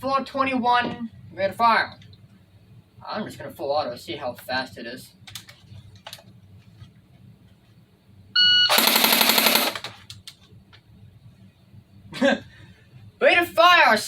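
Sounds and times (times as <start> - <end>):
airsoft gun full-auto fire: 8.7 - 10.0.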